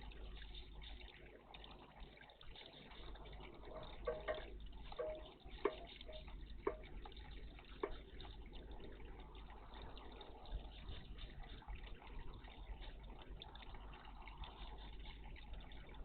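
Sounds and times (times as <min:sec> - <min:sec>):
water splashing in bird bath: 0:00.0 - 0:16.0.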